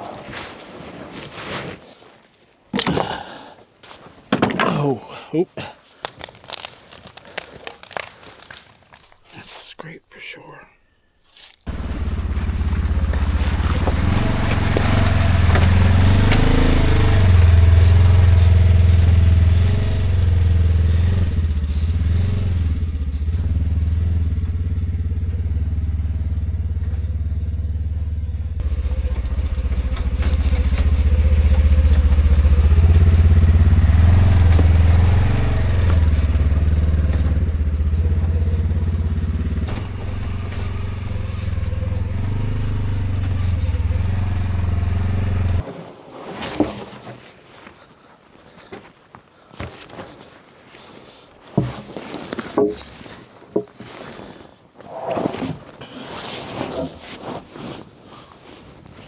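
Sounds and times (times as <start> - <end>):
utility vehicle engine running: 11.7 - 45.6.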